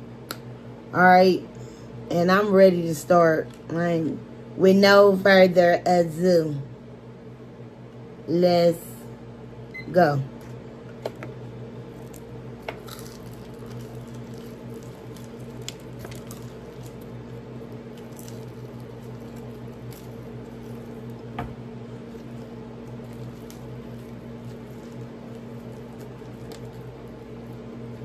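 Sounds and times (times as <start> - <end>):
steady low hum: 0.0 - 28.0
chewing and biting meat: 11.9 - 28.0
small wet clicks and smacks: 13.2 - 17.1, 22.2 - 27.2.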